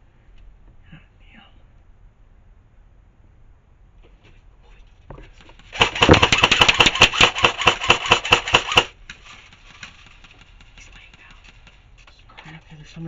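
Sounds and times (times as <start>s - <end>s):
airsoft rifle full-auto burst: 5.6s - 9.0s.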